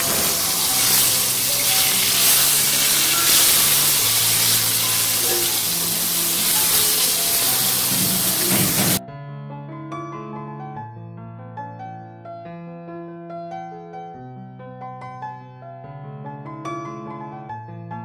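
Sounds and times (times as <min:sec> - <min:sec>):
eggplant sizzling in hot oil: 0:00.0 - 0:09.0
quiet background music: 0:00.0 - 0:09.0.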